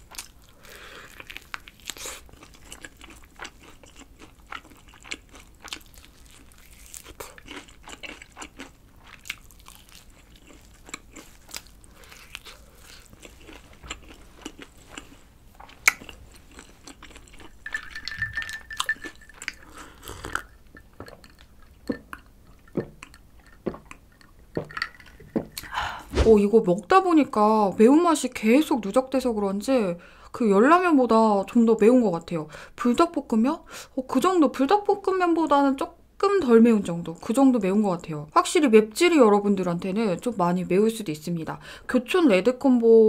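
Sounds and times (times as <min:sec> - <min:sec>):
crunchy chewing of fried chicken: 0:00.0 - 0:17.6, 0:18.8 - 0:25.8.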